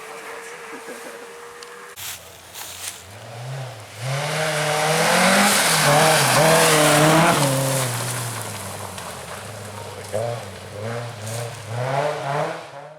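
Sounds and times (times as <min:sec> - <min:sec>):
rally car engine revving past: 0:03.0 - 0:12.9.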